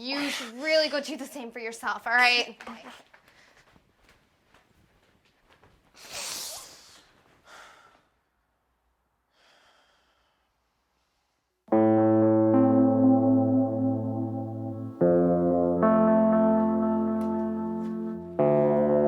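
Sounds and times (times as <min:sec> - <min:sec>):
electric piano chords: 0:11.7 - 0:19.0.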